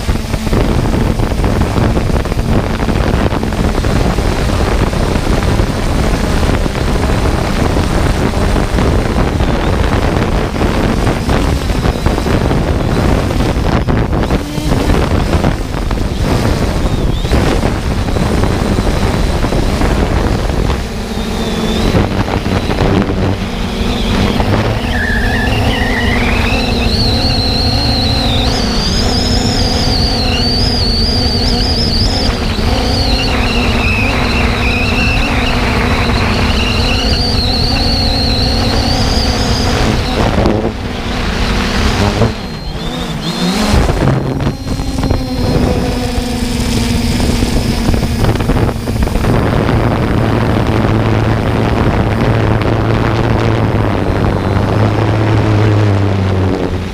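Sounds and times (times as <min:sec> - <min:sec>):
drone propellers whining: 0:00.0 - 0:56.9
wind buffeting microphone: 0:00.0 - 0:56.9.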